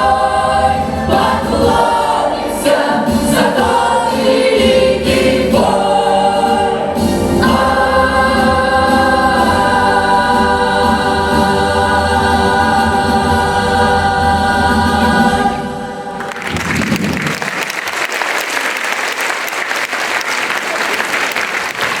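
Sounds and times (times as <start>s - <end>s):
vocal ensemble singing: 0.0s - 16.4s
audience applause: 16.2s - 22.0s.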